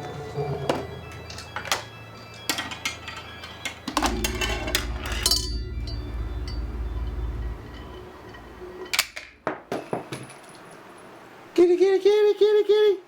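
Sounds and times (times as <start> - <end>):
steady low rumble: 4.0 - 9.6.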